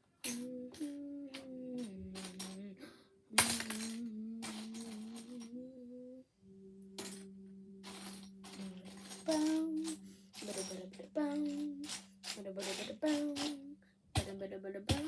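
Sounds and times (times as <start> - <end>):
child humming: 0.4 - 2.9, 4.0 - 11.9.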